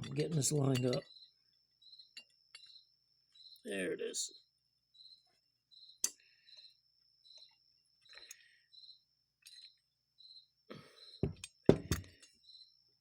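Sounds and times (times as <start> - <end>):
metal parts knocking and clinking: 0.0 - 1.2, 2.1 - 2.8, 11.2 - 12.4
cricket chirping: 0.0 - 13.0.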